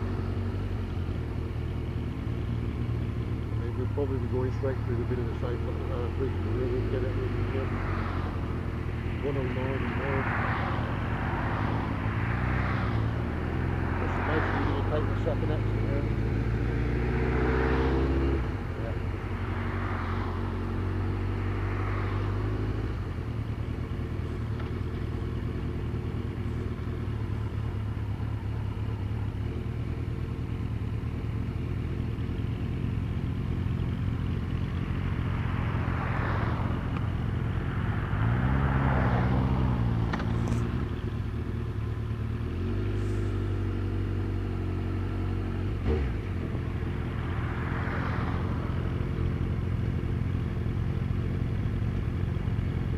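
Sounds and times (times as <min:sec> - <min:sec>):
vehicle engine running: 0:00.0 - 0:52.9
wind and road noise: 0:00.0 - 0:52.9
traffic swishing past: 0:03.8 - 0:23.5, 0:34.6 - 0:49.6.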